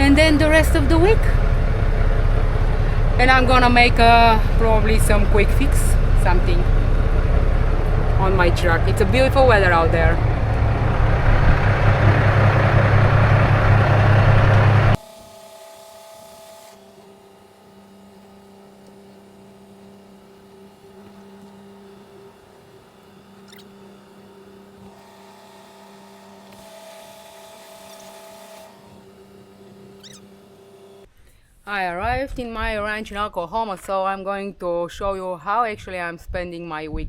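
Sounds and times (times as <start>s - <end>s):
truck engine and road noise: 0.0s - 15.1s
steady tonal hum: 0.0s - 31.1s.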